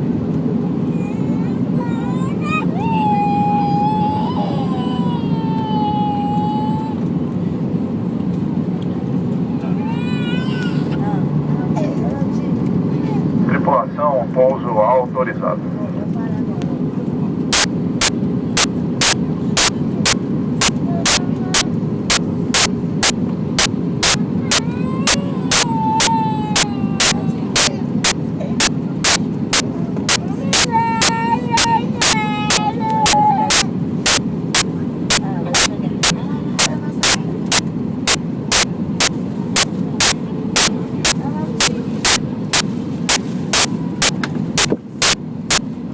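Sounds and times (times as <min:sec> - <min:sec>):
aircraft engine and airflow rumble: 0:00.0 - 0:45.9
sharp clicks: 0:17.5 - 0:18.1, 0:19.0 - 0:19.7, 0:22.1 - 0:22.7, 0:24.0 - 0:24.6, 0:27.0 - 0:29.2, 0:30.1 - 0:30.7, 0:33.5 - 0:34.7, 0:36.6 - 0:40.7, 0:41.6 - 0:42.2, 0:43.1 - 0:43.7, 0:44.6 - 0:45.6.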